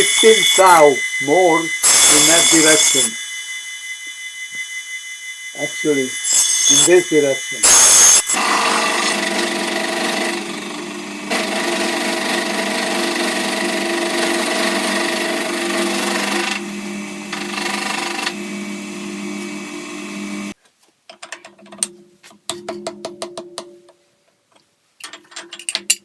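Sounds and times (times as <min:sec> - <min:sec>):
milling machine cutting metal: 0:00.0 - 0:20.6.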